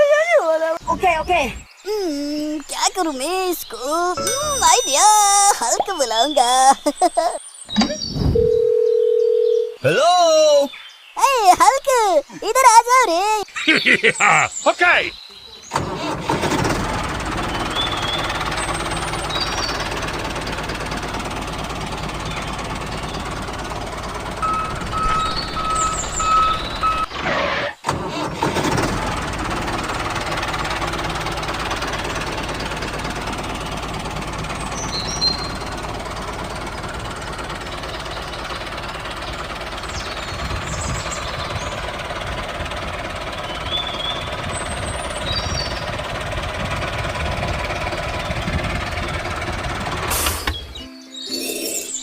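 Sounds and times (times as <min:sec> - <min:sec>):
pulsing beep: 0:04.2 - 0:05.0, 0:24.4 - 0:27.1
small engine knocking: 0:15.8 - 0:27.0, 0:27.9 - 0:50.5.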